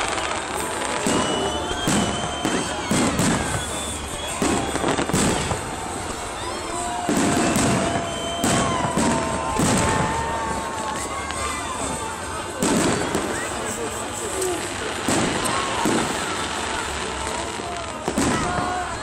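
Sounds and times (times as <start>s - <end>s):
fireworks bangs and crackles: 0.0s - 19.0s
fireworks whistling: 0.0s - 19.0s.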